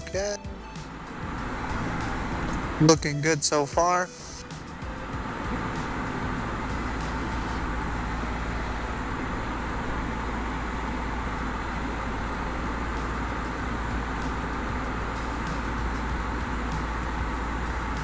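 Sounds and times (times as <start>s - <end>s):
propeller and airflow noise: 4.4s - 18.0s
small plane engine running: 4.4s - 18.0s.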